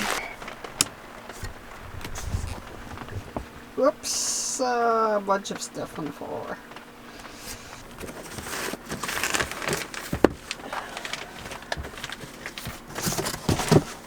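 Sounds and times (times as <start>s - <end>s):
loose items rustling: 0.0s - 3.4s, 6.8s - 14.0s.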